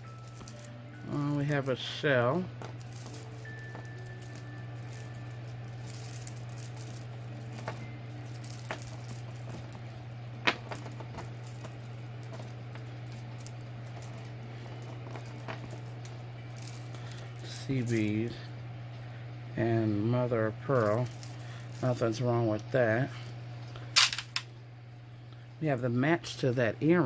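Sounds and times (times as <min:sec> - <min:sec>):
jewelry clicking and rattling: 0:00.0 - 0:18.2, 0:20.7 - 0:22.2, 0:24.0 - 0:24.4
steady low hum: 0:00.0 - 0:27.0.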